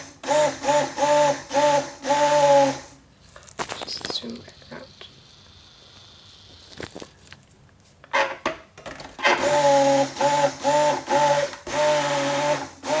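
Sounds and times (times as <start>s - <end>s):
stick blender running: 0.0s - 3.0s, 9.2s - 13.0s.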